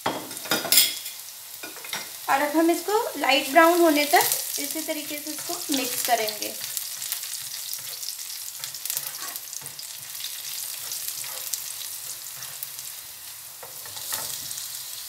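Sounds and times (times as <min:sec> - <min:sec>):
garlic sizzling in hot oil: 0:00.0 - 0:15.0
spatula scraping a pan: 0:05.0 - 0:14.9.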